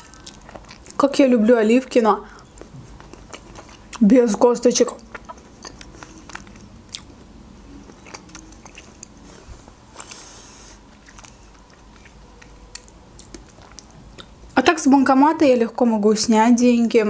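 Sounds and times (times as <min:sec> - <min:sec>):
person chewing food: 0:00.0 - 0:01.0, 0:02.3 - 0:04.0, 0:04.9 - 0:14.6.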